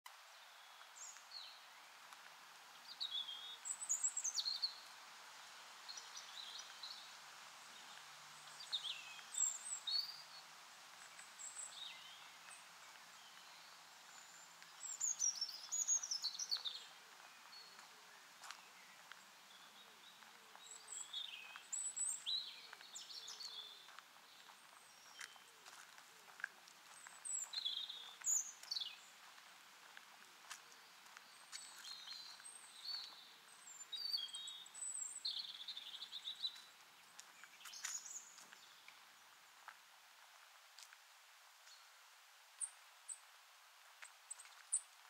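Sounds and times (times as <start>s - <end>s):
songbirds chirping: 0.1s - 45.0s.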